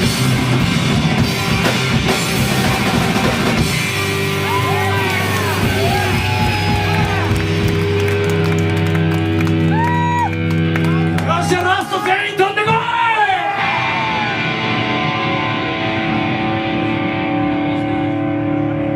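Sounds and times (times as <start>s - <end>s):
busy drumming: 0.0s - 13.0s
live rock band playing: 0.0s - 18.9s.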